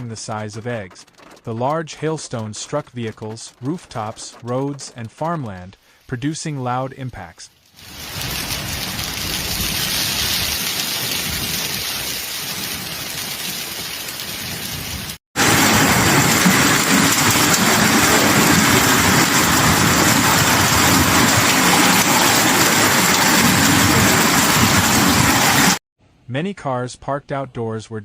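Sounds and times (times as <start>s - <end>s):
hail and heavy rain pelting: 7.8s - 25.8s.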